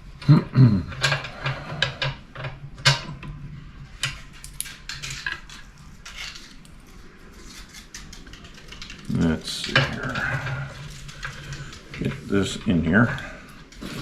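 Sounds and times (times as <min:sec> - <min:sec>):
small metal parts clinking: 0:04.0 - 0:12.2.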